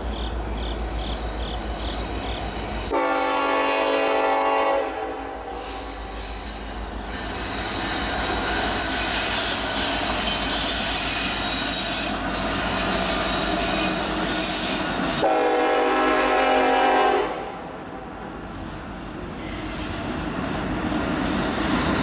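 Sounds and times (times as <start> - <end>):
train wheels rumbling on rail: 0.0 - 22.0
locomotive horn blast: 2.9 - 5.8, 15.2 - 17.6
high wheel squeal: 5.5 - 15.2, 19.3 - 20.4.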